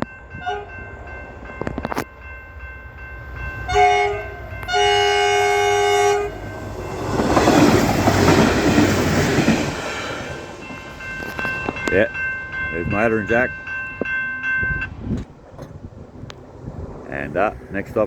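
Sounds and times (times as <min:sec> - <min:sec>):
train rumble: 0:00.0 - 0:18.0
train horn blasts: 0:00.3 - 0:00.9, 0:03.6 - 0:06.9
level crossing bell ringing: 0:10.4 - 0:15.0.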